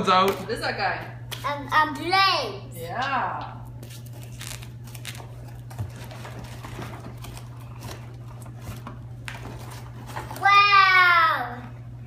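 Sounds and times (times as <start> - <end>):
paper packaging crinkling: 3.8 - 10.4.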